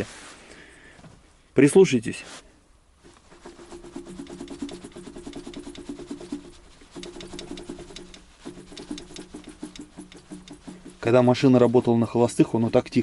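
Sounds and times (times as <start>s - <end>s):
rapid metallic clicking from engine: 3.4s - 11.2s.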